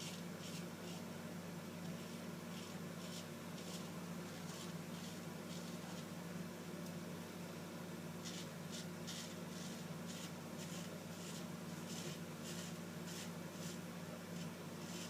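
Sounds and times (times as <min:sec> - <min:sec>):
razor scraping stubble: 0:02.5 - 0:06.1, 0:08.2 - 0:13.8, 0:14.4 - 0:15.0.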